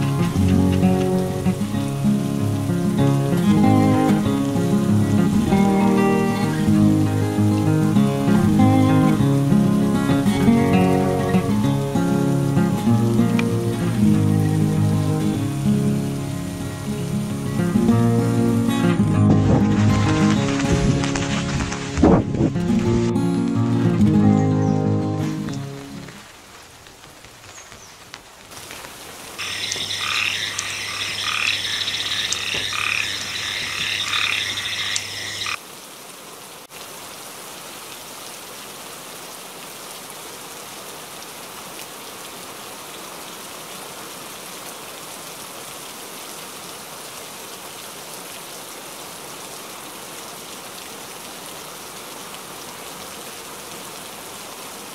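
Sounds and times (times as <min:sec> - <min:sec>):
steady rain: 0:00.0 - 0:54.9
frogs calling in pulses: 0:29.4 - 0:35.6.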